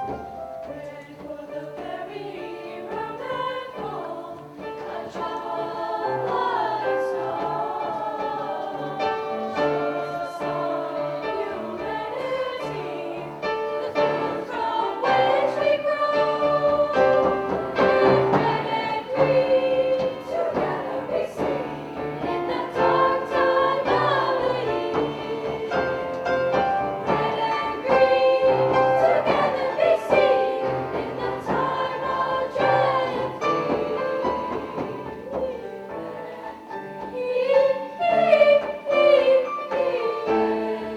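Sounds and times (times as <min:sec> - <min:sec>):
women's choir singing: 0:00.0 - 0:40.9.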